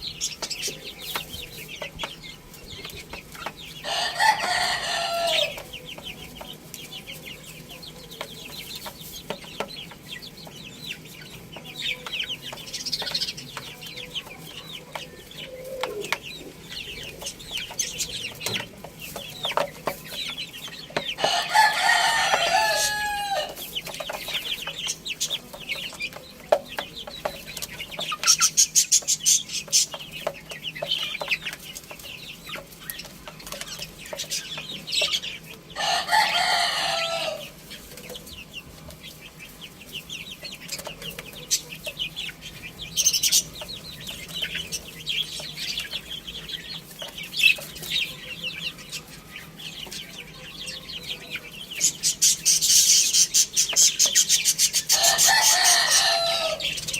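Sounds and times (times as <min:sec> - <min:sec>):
chickens clucking: 0:00.0 - 0:56.9
high-pitched chick chirps: 0:00.0 - 0:56.9
rooster crowing: 0:03.8 - 0:05.6, 0:21.2 - 0:23.6, 0:35.8 - 0:37.6, 0:54.9 - 0:56.8.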